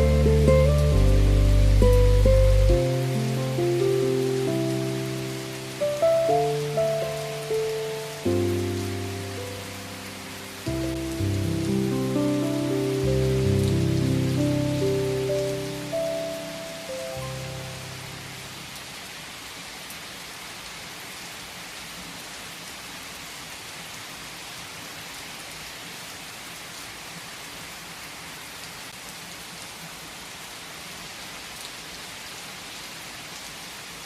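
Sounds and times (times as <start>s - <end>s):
piano chord: 0.0s - 18.7s
steady rain falling: 0.0s - 34.0s.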